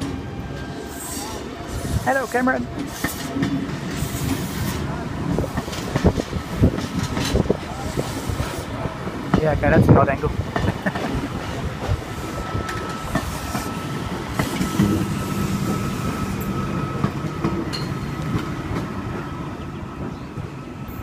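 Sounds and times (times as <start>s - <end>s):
train rumble: 0.0s - 21.0s
steady high tone: 12.2s - 18.2s.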